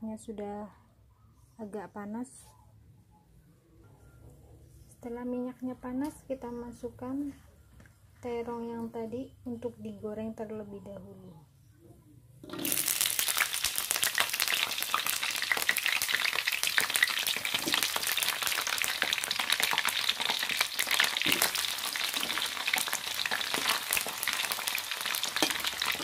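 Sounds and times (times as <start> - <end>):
crackling sizzle of deep-frying: 12.4 - 26.0.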